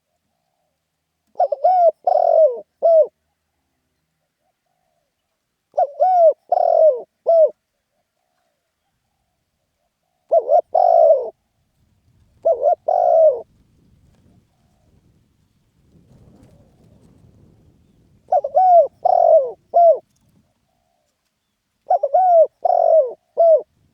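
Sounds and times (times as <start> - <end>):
dove cooing: 0.0 - 3.2, 5.7 - 11.4, 12.3 - 13.5, 16.4 - 21.1, 21.8 - 23.8.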